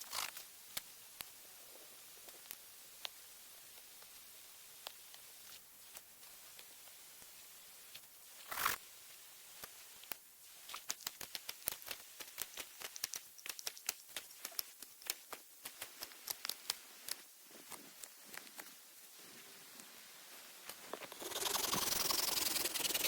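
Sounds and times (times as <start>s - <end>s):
knife whittling wood: 20.9s - 23.0s.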